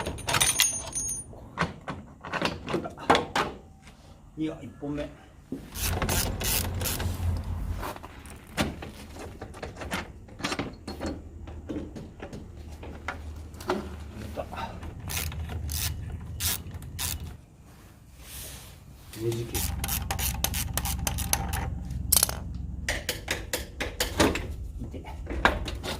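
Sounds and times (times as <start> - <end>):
metal tools clicking and knocking: 0.0 - 2.8, 19.6 - 22.5.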